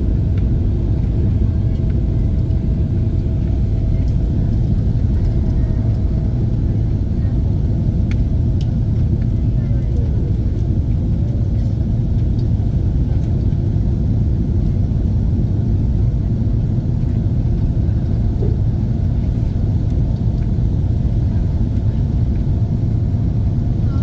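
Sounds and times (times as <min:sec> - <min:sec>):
airplane engines and airflow rumble: 0:00.0 - 0:24.0.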